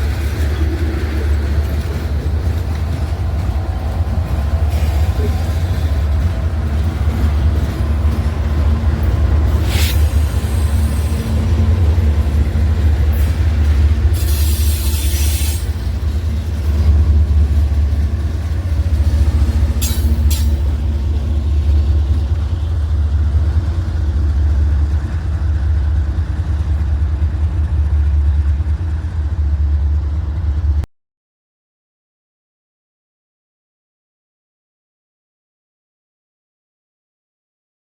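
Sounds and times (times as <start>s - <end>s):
diesel train engine rumbling: 0.0s - 30.9s
hiss: 9.6s - 11.4s, 14.2s - 15.8s.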